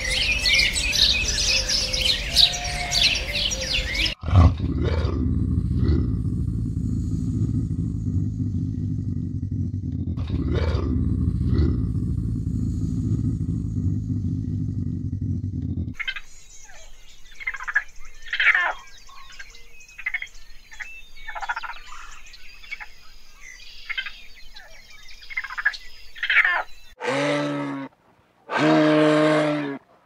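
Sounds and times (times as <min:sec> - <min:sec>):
deep animal calls: 0:00.0 - 0:16.2, 0:27.0 - 0:29.8
frogs croaking: 0:15.9 - 0:22.1.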